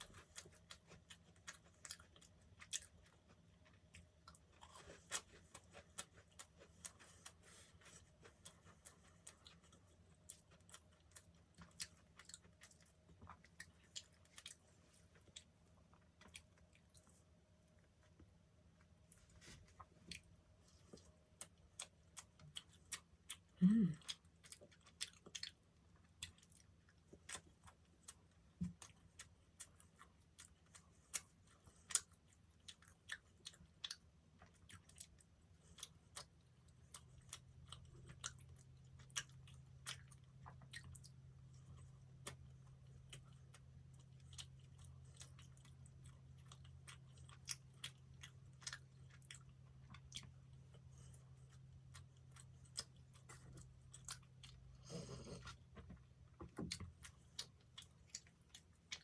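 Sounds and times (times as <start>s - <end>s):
low steady hum: 0.0s - 59.0s
person humming: 23.6s - 24.0s.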